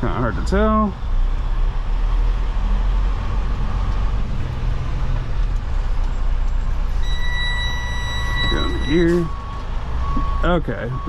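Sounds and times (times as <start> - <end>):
diesel engine rumbling: 0.0 - 11.0
reversing alarm beeping: 6.9 - 11.0.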